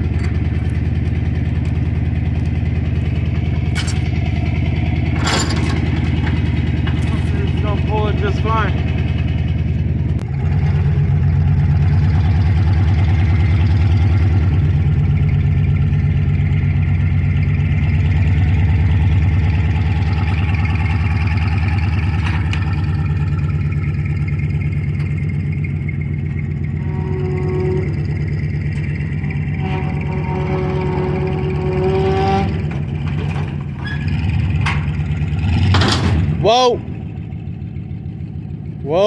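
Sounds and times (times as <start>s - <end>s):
pickup truck engine running: 0.0s - 39.0s.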